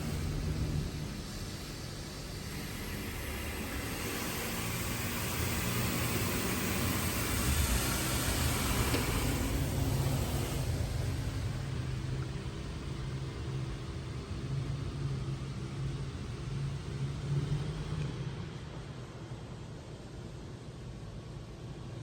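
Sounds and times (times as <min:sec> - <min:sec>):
high-pressure water jets hissing: 0:00.0 - 0:12.2.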